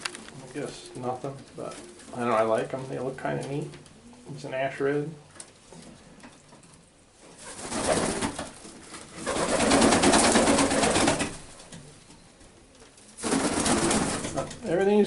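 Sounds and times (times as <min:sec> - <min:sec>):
pigeons cooing: 0:00.0 - 0:02.7.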